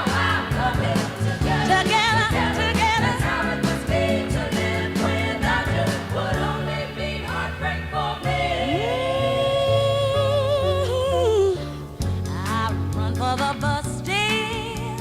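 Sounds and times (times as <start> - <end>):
song with lead voice and beat: 0.0 - 9.2.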